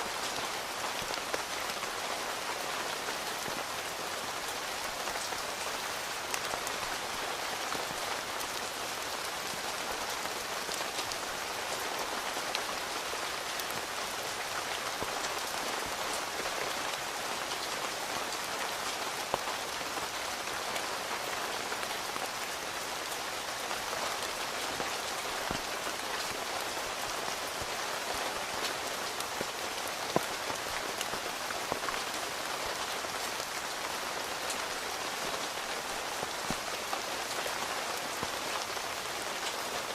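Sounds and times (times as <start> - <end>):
rain falling on a tent: 0.0 - 39.9.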